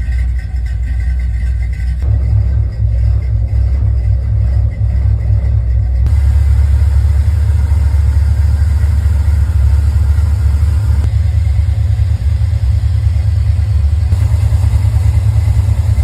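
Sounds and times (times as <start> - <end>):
truck engine rumbling: 0.0 - 16.0.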